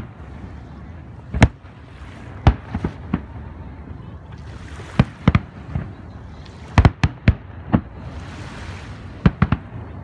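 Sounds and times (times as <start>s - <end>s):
fireworks bursting with sharp bangs: 1.2s - 3.5s, 5.0s - 10.0s.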